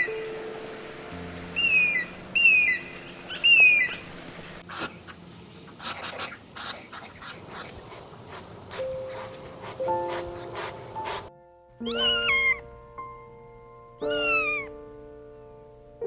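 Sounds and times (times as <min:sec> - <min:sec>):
background music tones: 0:00.0 - 0:04.6, 0:08.7 - 0:16.0
high whistled animal calls: 0:01.6 - 0:04.0, 0:11.8 - 0:12.6, 0:14.0 - 0:14.8.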